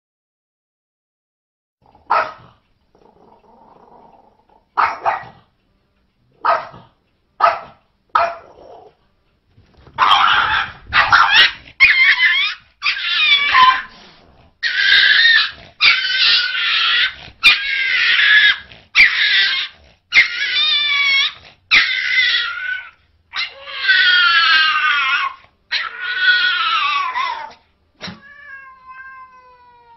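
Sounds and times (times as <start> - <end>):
dog barking: 2.0 - 2.6, 4.8 - 5.5, 6.4 - 8.8, 10.0 - 13.9
dog crying calls: 10.0 - 13.9, 14.6 - 27.6.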